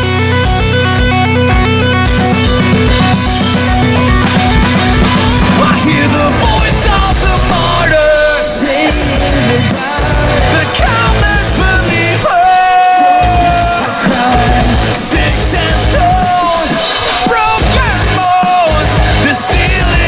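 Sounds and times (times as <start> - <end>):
lead guitar bending notes: 0.0 - 12.2
live rock band playing: 0.0 - 20.0.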